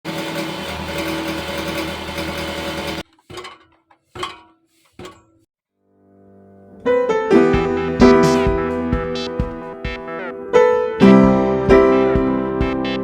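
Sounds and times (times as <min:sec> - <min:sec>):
car engine running: 0:00.1 - 0:03.0
exhaust metallic rattle: 0:00.1 - 0:05.5
ringing knocks: 0:01.7 - 0:05.5.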